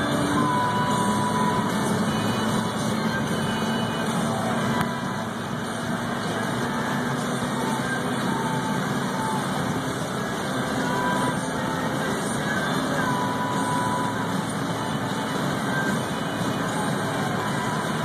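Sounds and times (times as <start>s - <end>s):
road and wind noise: 0.0s - 18.0s
rotary engine revving high: 0.0s - 18.0s.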